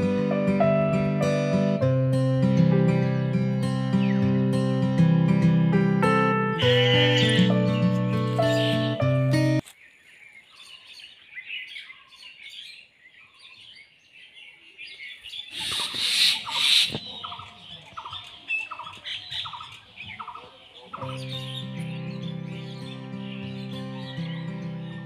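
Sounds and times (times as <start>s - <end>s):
music: 0.0s - 9.6s, 21.0s - 25.0s
birds chirping: 6.5s - 25.0s
repeated short bird call: 15.4s - 21.6s.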